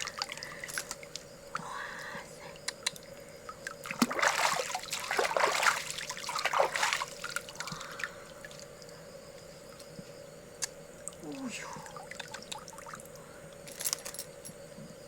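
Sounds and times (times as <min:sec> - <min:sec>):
water drips: 0:02.6 - 0:09.1, 0:10.6 - 0:13.3
river water splashing: 0:03.7 - 0:08.6.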